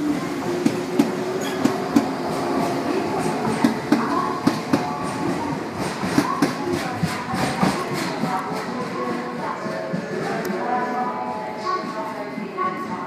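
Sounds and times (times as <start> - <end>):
steady train hum: 0.0 - 13.0
train wheels clacking over rail joints: 3.2 - 10.6.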